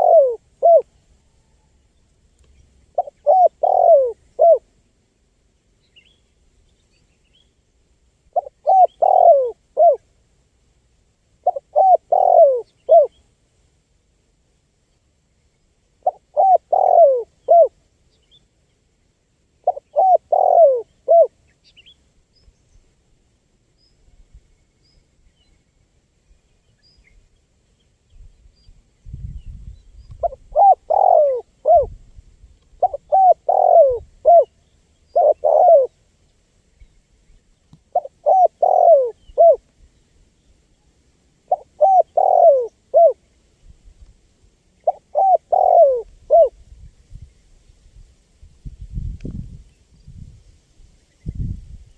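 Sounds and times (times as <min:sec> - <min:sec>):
dove cooing: 0:00.0 - 0:00.9, 0:02.9 - 0:04.7, 0:08.3 - 0:10.1, 0:11.4 - 0:13.2, 0:16.0 - 0:17.8, 0:19.6 - 0:21.4, 0:30.1 - 0:32.0, 0:32.7 - 0:34.5, 0:35.1 - 0:36.0, 0:37.9 - 0:39.6, 0:41.5 - 0:43.2, 0:44.8 - 0:46.6.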